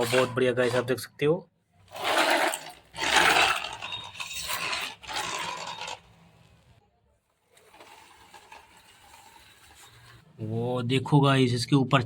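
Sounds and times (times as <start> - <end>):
toy car wheels scraping ground: 0.0 - 1.0, 1.8 - 10.4.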